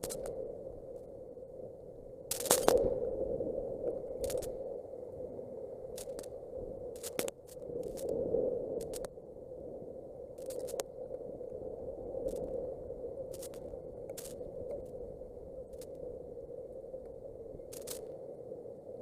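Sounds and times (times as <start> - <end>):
sharp clicks and crackles: 0.0 - 0.4, 2.3 - 2.9, 3.9 - 4.6, 5.9 - 8.2, 8.8 - 9.2, 10.4 - 11.2, 12.2 - 12.6, 13.3 - 15.0, 15.7 - 16.0, 17.0 - 18.2.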